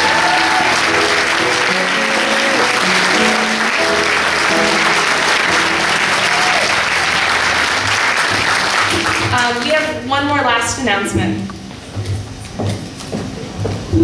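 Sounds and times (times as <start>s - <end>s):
instrumental music: 0.0s - 9.3s
audience applauding: 0.0s - 9.9s.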